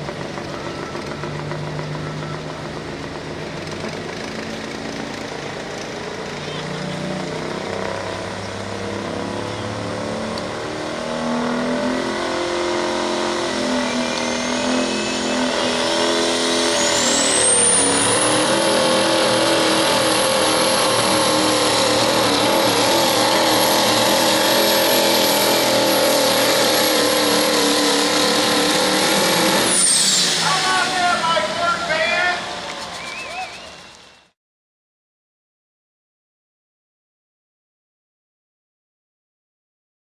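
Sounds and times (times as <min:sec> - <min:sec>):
diesel truck engine under load: 0:00.0 - 0:34.4
turbo whistle: 0:13.5 - 0:19.1, 0:31.9 - 0:34.3.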